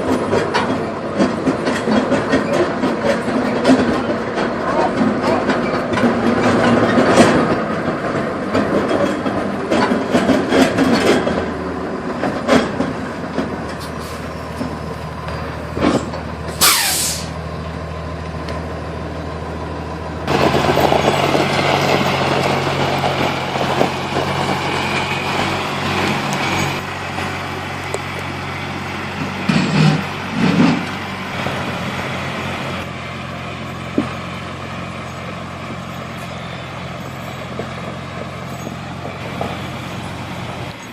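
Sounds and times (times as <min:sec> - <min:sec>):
knocks and clanks: 0:00.0 - 0:11.5, 0:12.2 - 0:13.9, 0:15.8 - 0:16.3, 0:29.2 - 0:31.1
heavy truck engine running: 0:00.0 - 0:40.9
air release hiss: 0:16.6 - 0:17.4.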